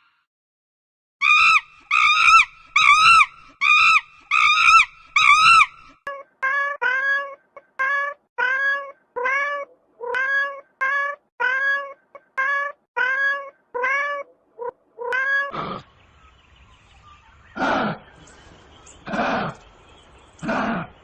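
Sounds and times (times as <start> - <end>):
cat meowing: 6.1 - 15.6.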